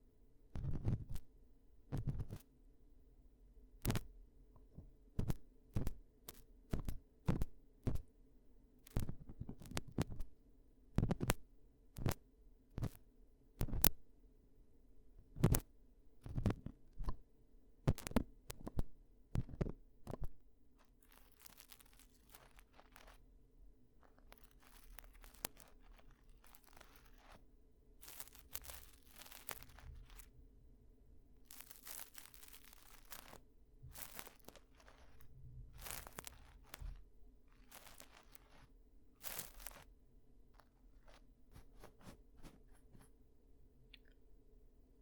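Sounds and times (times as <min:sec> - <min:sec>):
soft scratching and rubbing: 0:00.6 - 0:01.3, 0:01.9 - 0:02.5, 0:04.7 - 0:08.1, 0:08.8 - 0:10.3, 0:11.0 - 0:11.4, 0:12.8 - 0:13.0, 0:15.3 - 0:17.2, 0:17.9 - 0:23.4, 0:24.0 - 0:30.4, 0:31.4 - 0:43.2
sharp taps and clicks: 0:04.6 - 0:08.0.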